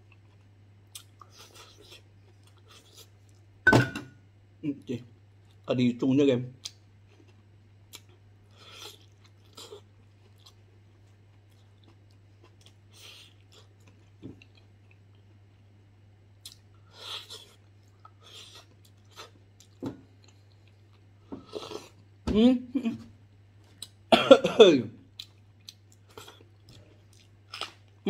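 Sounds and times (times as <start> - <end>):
wet chewing and smacking: 25.1 - 28.0.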